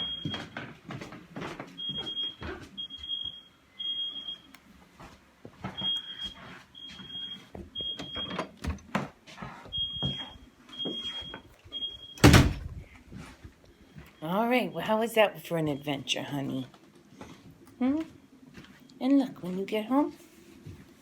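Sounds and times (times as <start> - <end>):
smoke alarm beeping: 0.0 - 0.6, 1.8 - 4.6, 5.7 - 8.4, 9.7 - 12.6, 13.8 - 16.7.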